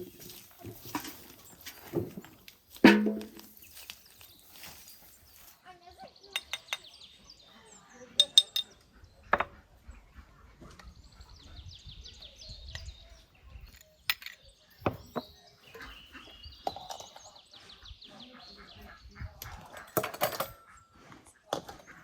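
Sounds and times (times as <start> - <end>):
small bird singing trills: 3.6 - 9.2, 10.9 - 19.2.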